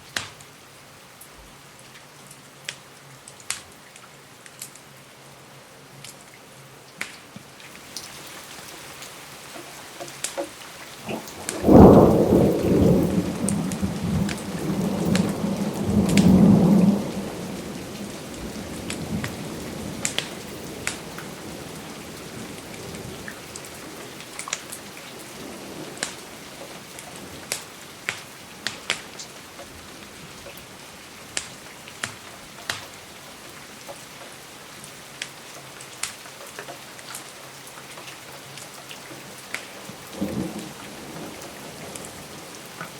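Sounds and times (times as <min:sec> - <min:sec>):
steady rain: 0:00.0 - 0:42.9
thunder rumbling: 0:11.0 - 0:28.1.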